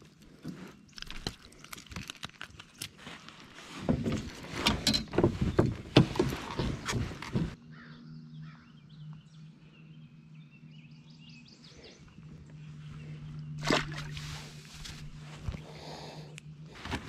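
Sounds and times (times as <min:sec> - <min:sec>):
steady low hum: 0:03.0 - 0:17.0
birds chirping faintly: 0:05.4 - 0:16.7.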